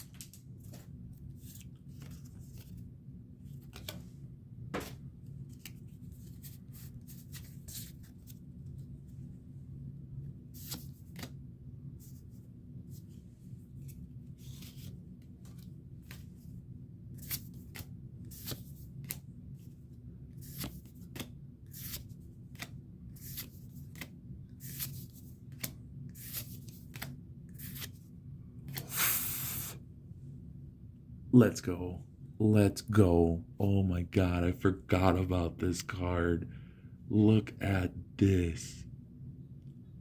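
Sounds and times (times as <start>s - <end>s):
trading cards rustling: 4.8s - 8.9s, 13.7s - 16.5s, 20.4s - 28.0s.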